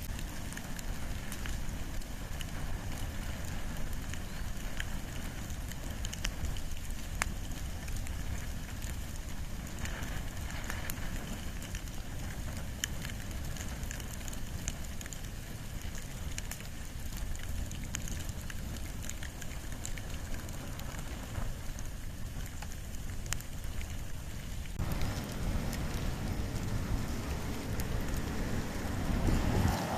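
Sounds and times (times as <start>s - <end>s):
campfire crackling and popping: 0.0s - 29.9s
flame rumbling: 0.0s - 29.9s.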